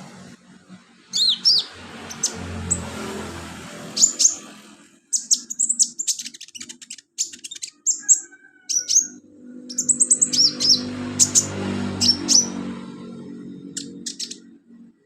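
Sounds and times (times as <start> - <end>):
bird singing high chirps: 1.1 - 2.9, 3.9 - 12.7, 13.4 - 14.8.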